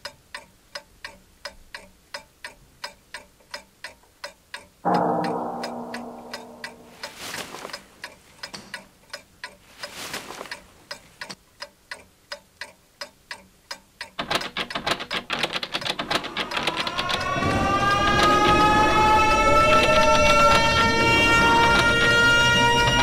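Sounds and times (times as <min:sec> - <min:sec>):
clock ticking: 0:00.0 - 0:17.4
chord of rising tones: 0:04.8 - 0:07.1.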